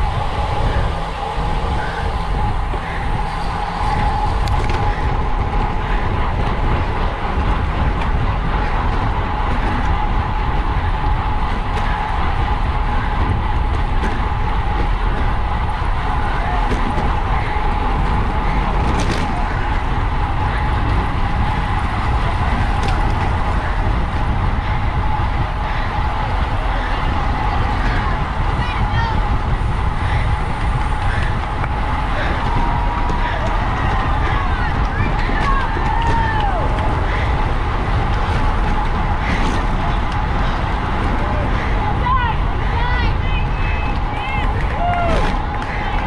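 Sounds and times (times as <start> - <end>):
thin steady whine: 0.0 - 46.0
wind rushing over microphone: 0.0 - 46.0.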